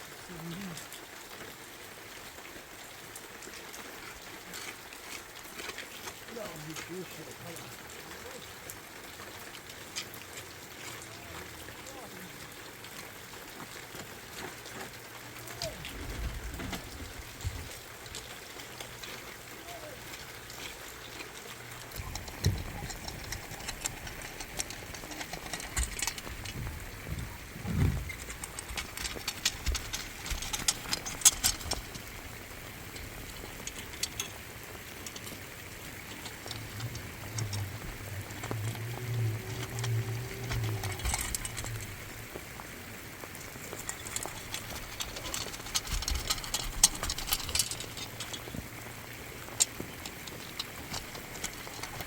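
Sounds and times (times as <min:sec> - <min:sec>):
rain with drops ticking: 0:00.0 - 0:52.0
dull low thumps: 0:26.2 - 0:28.7.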